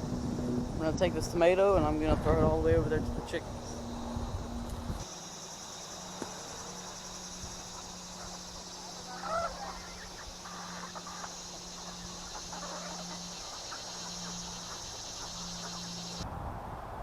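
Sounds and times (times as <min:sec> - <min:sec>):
high buzz of insects: 0:00.0 - 0:16.2
chickens clucking: 0:07.6 - 0:16.2.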